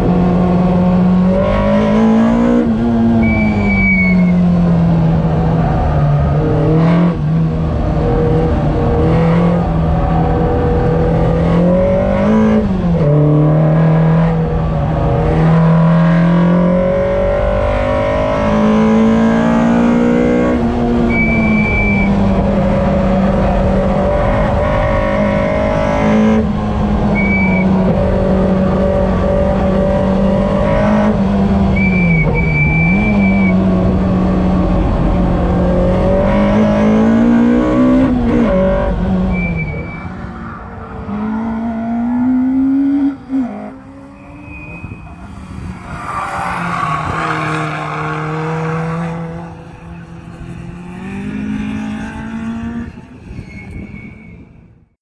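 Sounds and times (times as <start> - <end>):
car engine under hard driving: 0.0 - 53.9
tyre squeals: 39.3 - 40.6, 43.9 - 48.8, 52.7 - 54.7.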